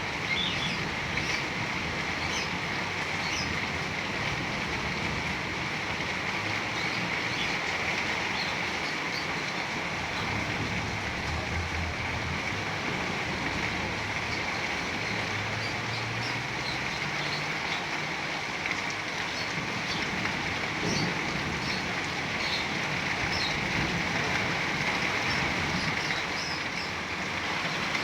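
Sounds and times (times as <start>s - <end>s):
heavy rain falling: 0.0s - 28.0s
low rumble: 10.1s - 14.0s.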